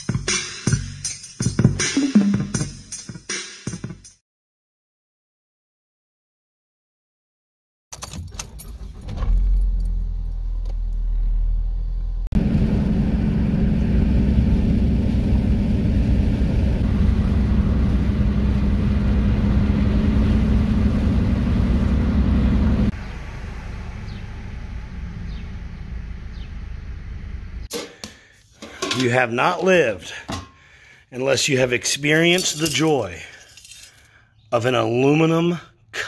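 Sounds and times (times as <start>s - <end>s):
vehicle rumble: 8.6s - 27.7s
strong low hum: 9.2s - 27.7s.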